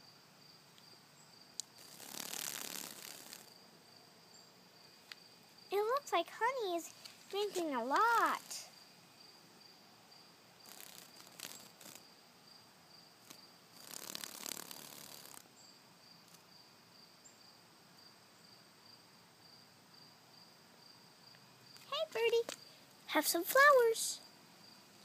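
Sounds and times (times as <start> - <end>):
faint insect trill: 0.0 - 25.0
rustling: 1.7 - 3.5.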